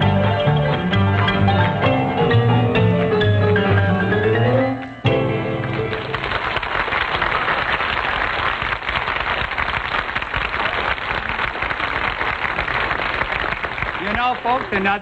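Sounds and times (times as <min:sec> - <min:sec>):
audience applauding: 0:05.4 - 0:15.0.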